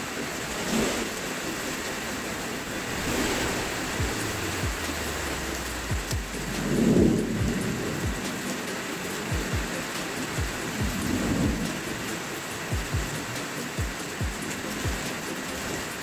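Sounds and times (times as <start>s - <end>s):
rain hissing: 0.0s - 16.0s
deep thumps: 3.7s - 4.9s, 5.8s - 8.2s.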